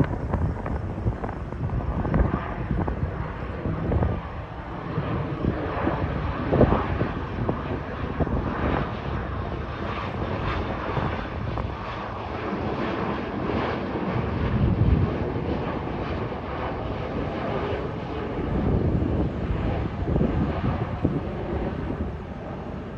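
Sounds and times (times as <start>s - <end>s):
jet airliner flying overhead: 0.0s - 22.9s.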